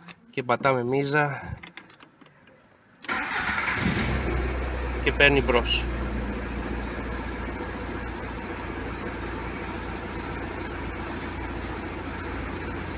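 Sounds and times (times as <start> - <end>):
diesel engine idling: 3.1 - 12.9.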